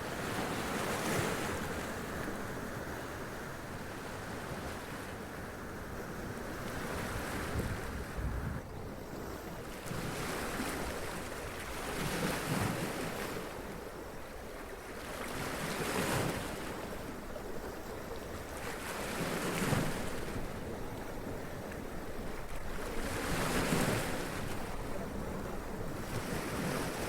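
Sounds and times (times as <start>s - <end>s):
wind rumble on microphone: 6.0s - 9.0s.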